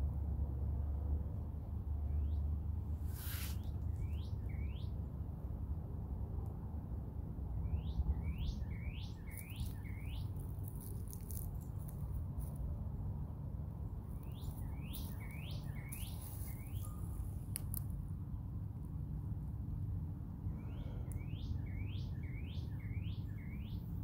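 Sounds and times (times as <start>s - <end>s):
songbird whistling: 3.4s - 5.0s, 7.6s - 10.3s, 14.2s - 17.0s, 20.5s - 23.9s.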